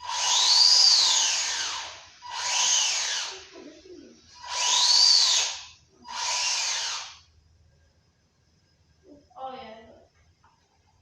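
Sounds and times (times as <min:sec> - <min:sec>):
electric rc car motor whining: 0:00.0 - 0:03.5, 0:04.4 - 0:07.3.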